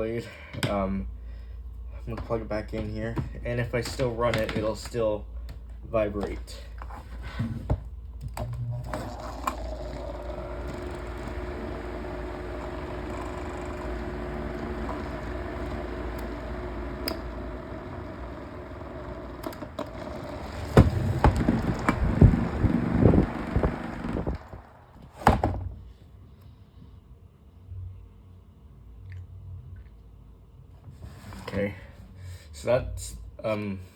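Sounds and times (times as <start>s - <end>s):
electric fan motor hum: 1.7s - 25.8s
fan blade vibrating: 7.9s - 25.6s
loud knocks and clatter: 19.7s - 24.4s.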